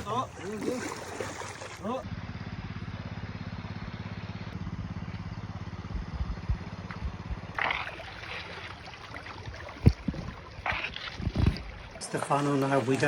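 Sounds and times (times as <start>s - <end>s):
vehicle engine running: 1.8s - 9.4s.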